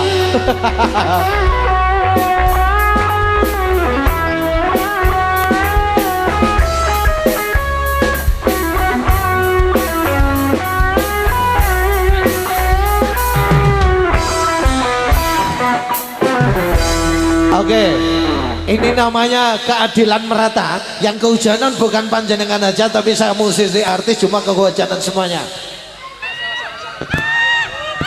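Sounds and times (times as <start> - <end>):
steady drum beat: 0.0 - 19.2
bass: 0.0 - 19.4
electric guitar melody: 0.0 - 19.7.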